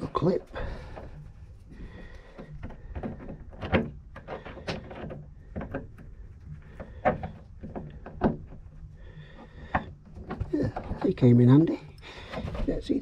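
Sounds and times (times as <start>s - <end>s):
clicks and knocks of small parts: 2.0s - 8.7s.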